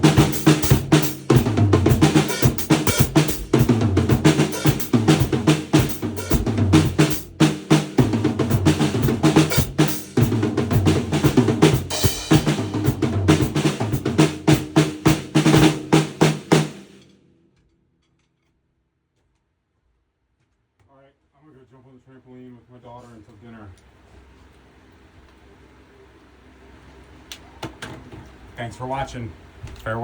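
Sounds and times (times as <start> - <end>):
acoustic drum kit playing: 0.0 - 17.1.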